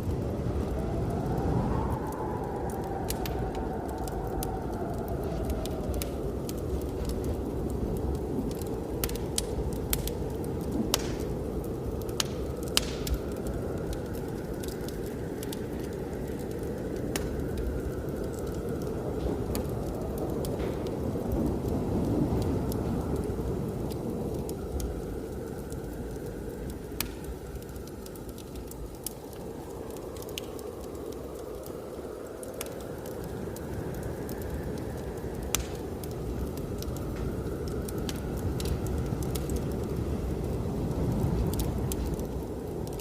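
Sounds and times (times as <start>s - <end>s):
blizzard wind rushing: 0.0s - 43.0s
wood fire crackling: 0.0s - 43.0s
sharp pops of fire: 8.0s - 15.6s, 35.4s - 40.0s.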